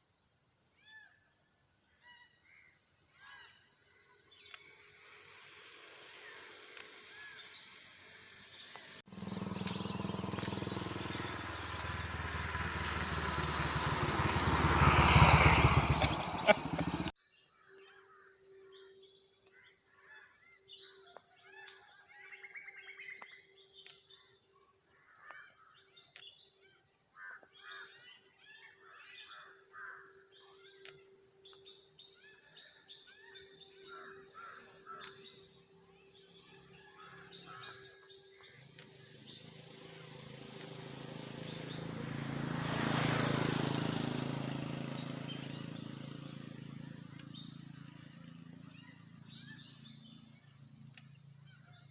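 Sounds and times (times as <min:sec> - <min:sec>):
high insect drone: 0:04.8 - 0:17.1, 0:33.8 - 0:51.9
small birds chirping: 0:08.6 - 0:17.1, 0:34.4 - 0:51.9.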